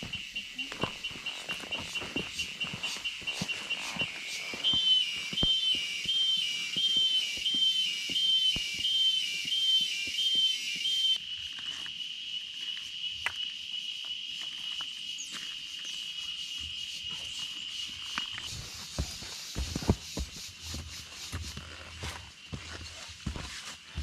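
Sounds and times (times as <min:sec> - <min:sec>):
shrill insect drone: 0:00.0 - 0:19.9
pulsing call: 0:00.1 - 0:11.2.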